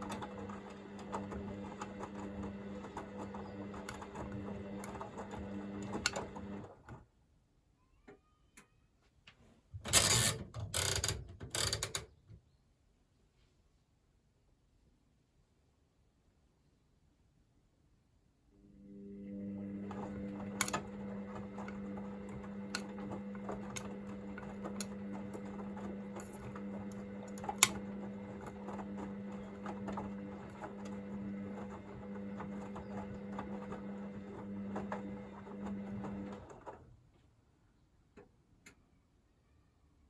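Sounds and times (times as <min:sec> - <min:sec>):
washing machine motor hum: 0:00.0 - 0:07.0, 0:18.6 - 0:37.0.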